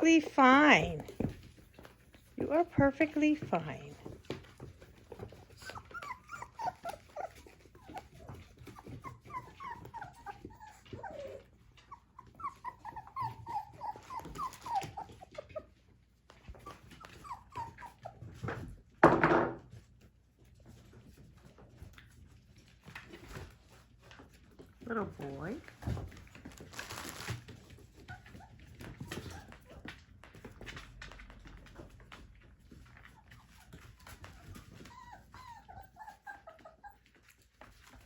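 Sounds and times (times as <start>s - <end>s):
puppies whimpering: 5.0s - 15.9s, 16.5s - 18.5s, 32.9s - 38.0s.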